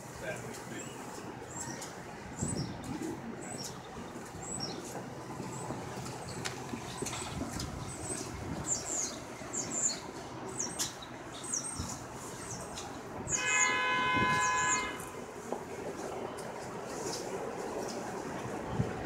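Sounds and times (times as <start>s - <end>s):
train noise: 0.0s - 19.0s
train horn: 13.3s - 15.4s.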